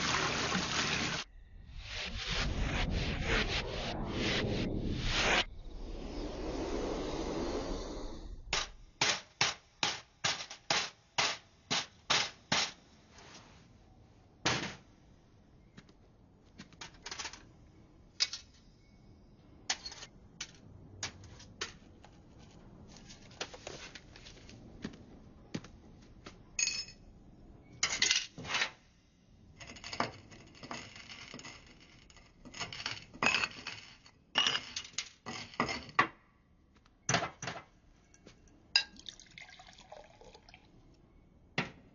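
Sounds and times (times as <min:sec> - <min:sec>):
glass and metal equipment clattering: 0:26.6 - 0:27.0.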